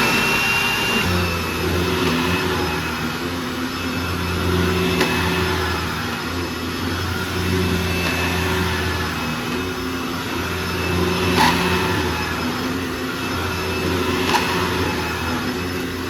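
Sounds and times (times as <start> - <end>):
vacuum cleaner high whine: 0.0 - 16.0.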